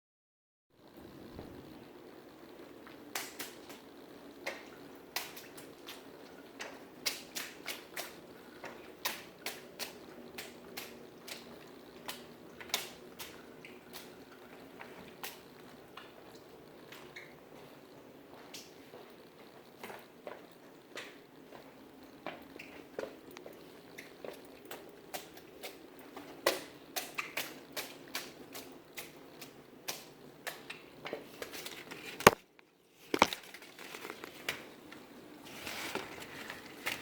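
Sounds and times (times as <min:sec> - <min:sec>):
steady low hum: 0:00.8 - 0:27.0
water dripping: 0:01.8 - 0:35.3.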